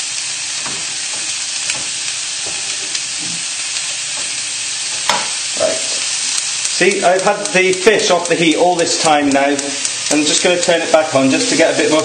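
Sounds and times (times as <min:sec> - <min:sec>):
potatoes sizzling in hot oil: 0:00.0 - 0:12.0
wooden spoon knocking on pan: 0:00.6 - 0:03.4, 0:04.1 - 0:05.4.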